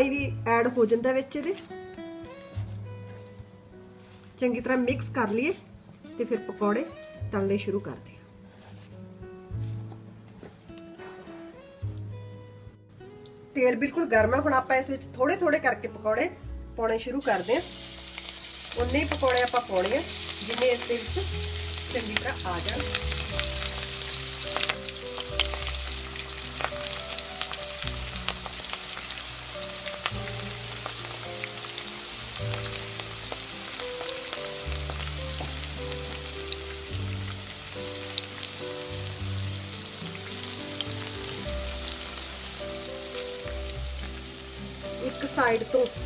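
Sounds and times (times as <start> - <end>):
background music of held notes: 0.0 - 46.0
food deep-frying in oil: 17.2 - 46.0.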